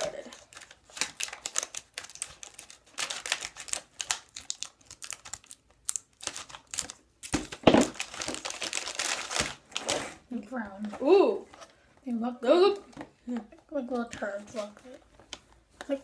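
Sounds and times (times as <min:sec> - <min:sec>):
plastic wrapper crinkling: 0:00.0 - 0:10.3
wrapper tearing and rustling: 0:00.0 - 0:10.3.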